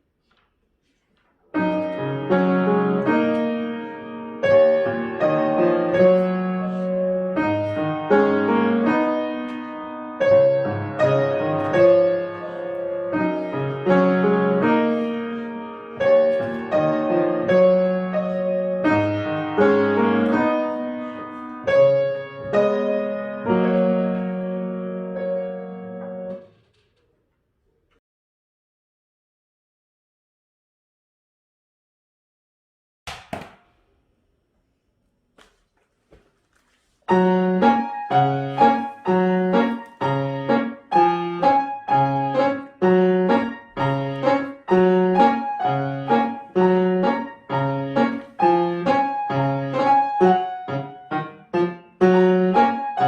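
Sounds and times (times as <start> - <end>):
solo piano piece: 1.5 - 26.5, 37.0 - 53.0.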